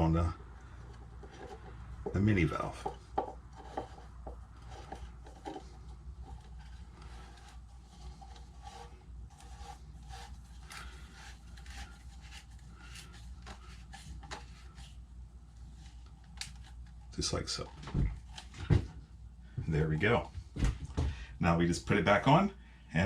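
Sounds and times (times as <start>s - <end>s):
plastic valve scraping on threads: 0.0s - 15.0s.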